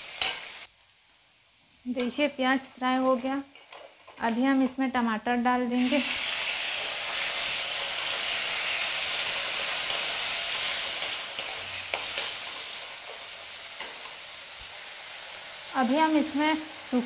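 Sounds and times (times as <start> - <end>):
tomatoes sizzling in hot oil: 0.0 - 17.0
spatula clicking and scraping pan: 0.1 - 0.6, 2.0 - 4.4, 6.7 - 14.4.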